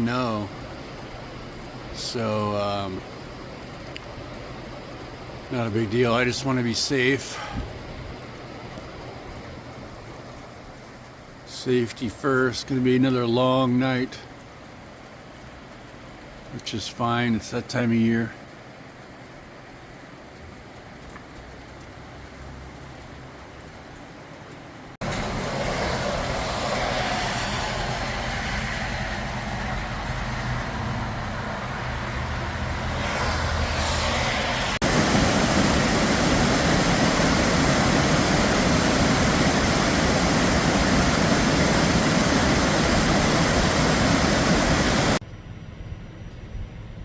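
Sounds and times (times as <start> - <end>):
truck driving on road: 25.0 - 38.0.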